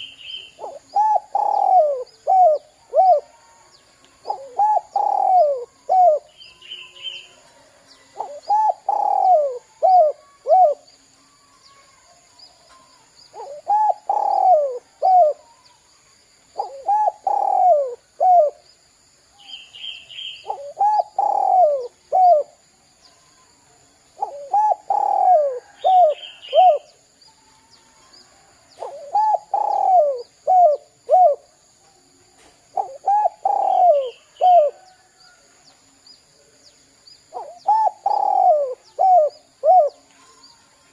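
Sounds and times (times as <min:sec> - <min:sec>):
dove cooing: 0:00.0 - 0:03.6, 0:04.2 - 0:07.4, 0:08.0 - 0:10.9, 0:13.3 - 0:15.5, 0:16.6 - 0:18.6, 0:20.2 - 0:22.6, 0:24.2 - 0:26.9, 0:28.7 - 0:31.5, 0:32.7 - 0:35.1, 0:37.3 - 0:40.1.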